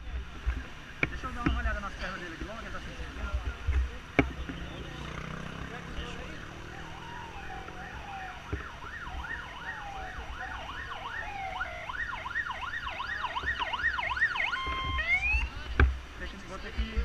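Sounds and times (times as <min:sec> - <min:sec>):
emergency vehicle siren: 0:05.1 - 0:15.7.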